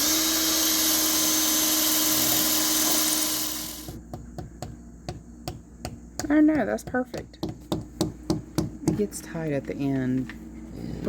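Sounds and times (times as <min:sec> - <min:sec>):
cordless drill driving screw: 0:00.0 - 0:03.9.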